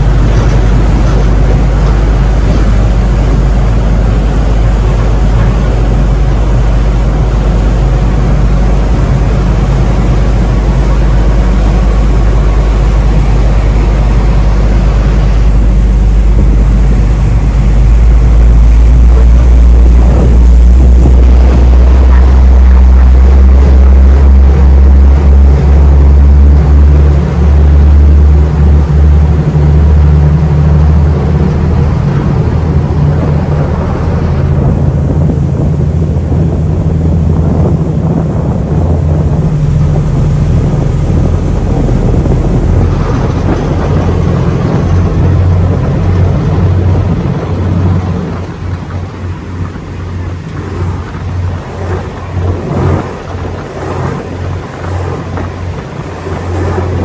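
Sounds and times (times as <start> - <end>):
diesel engine droning: 0.0 - 57.0
wind buffeting microphone: 0.0 - 57.0.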